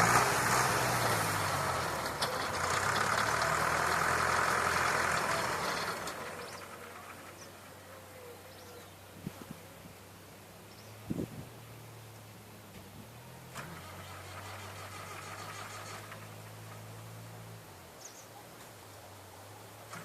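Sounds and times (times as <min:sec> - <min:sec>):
diesel tractor engine running: 0:00.0 - 0:08.0, 0:11.3 - 0:20.0.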